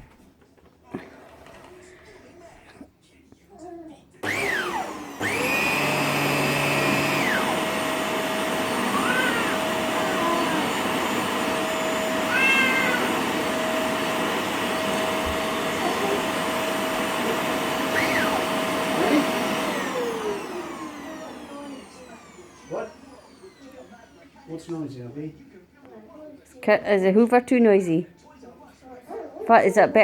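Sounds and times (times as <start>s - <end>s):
vacuum cleaner running: 4.2s - 25.1s
high-pitched cries: 8.7s - 10.8s, 12.1s - 13.4s.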